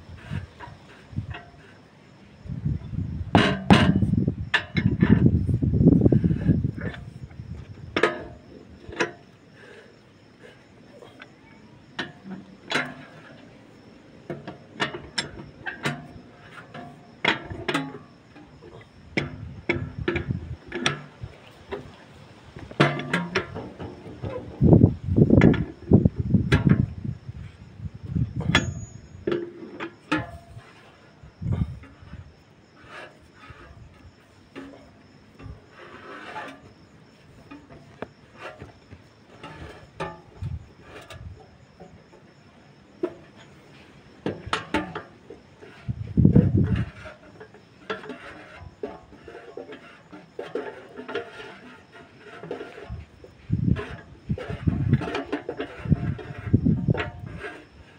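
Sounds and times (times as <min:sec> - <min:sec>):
metal tools clinking: 0:28.4 - 0:30.3.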